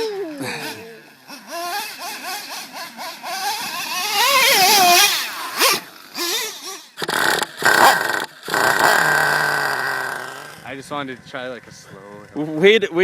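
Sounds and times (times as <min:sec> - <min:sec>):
rc truck engine revving: 0:00.0 - 0:12.4.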